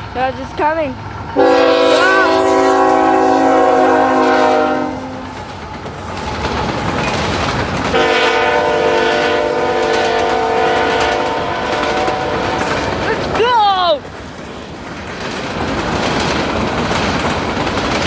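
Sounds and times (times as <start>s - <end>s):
passing train rumble: 0.0s - 18.0s
train horn blast: 1.4s - 5.4s, 7.9s - 13.0s.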